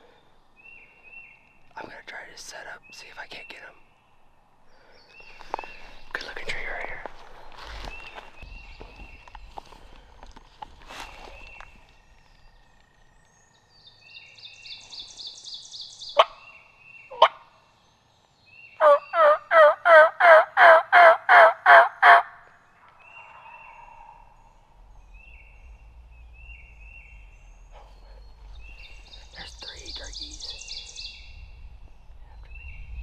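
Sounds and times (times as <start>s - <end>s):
turkey yelping: 18.8s - 22.4s.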